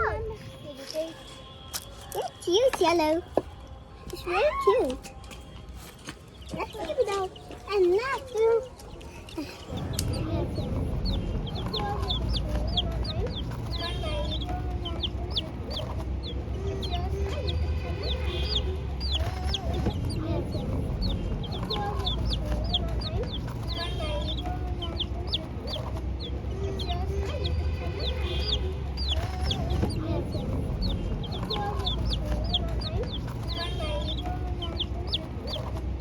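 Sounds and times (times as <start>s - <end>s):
chicks peeping: 6.2s - 36.0s
steady low hum: 9.7s - 36.0s.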